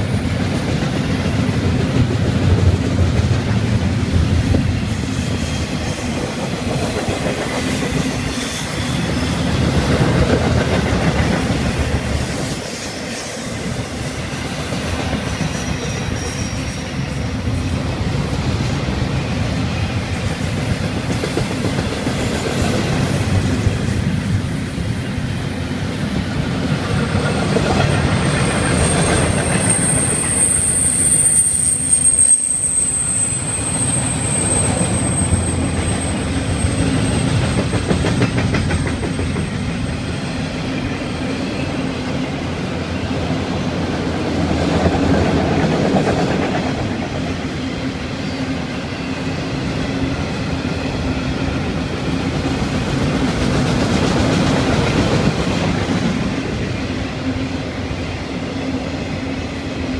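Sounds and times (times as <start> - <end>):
high wheel squeal: 0.0 - 10.3, 11.4 - 18.8, 27.7 - 43.0
freight cars rumbling on rails: 0.0 - 59.9.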